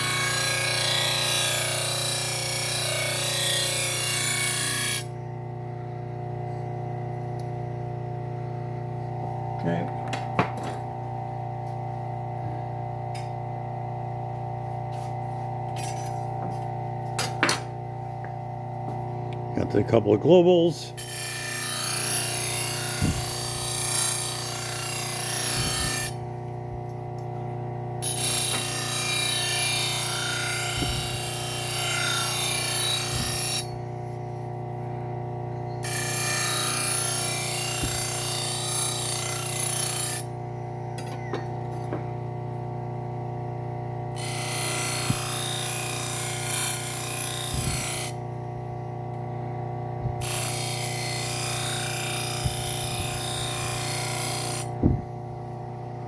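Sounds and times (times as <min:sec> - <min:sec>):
knife blade rubbing on leather wheel: 0:21.0 - 0:26.2, 0:28.0 - 0:33.8, 0:44.2 - 0:48.2, 0:50.2 - 0:54.8
sander motor humming: 0:21.6 - 0:56.0.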